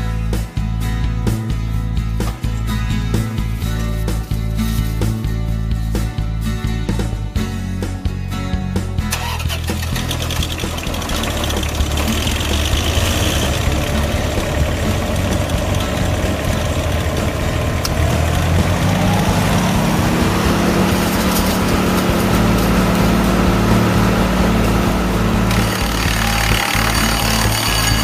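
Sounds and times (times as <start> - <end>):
wood chipper engine running: 9.0 - 28.0.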